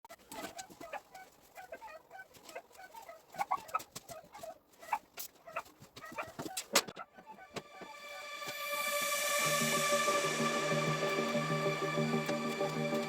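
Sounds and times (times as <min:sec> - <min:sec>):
chickens clucking: 0:00.1 - 0:08.3.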